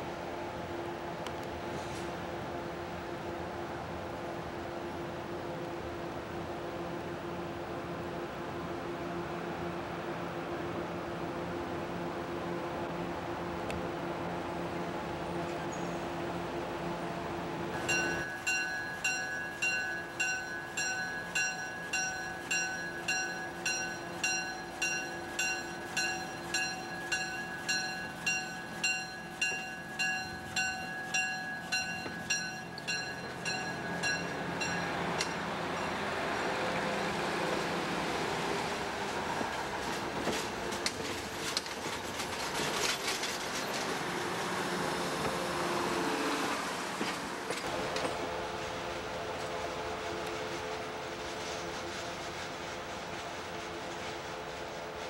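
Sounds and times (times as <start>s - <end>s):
bell ringing: 17.8s - 35.0s
train wheels clattering on rails: 17.8s - 37.8s, 38.4s - 55.0s.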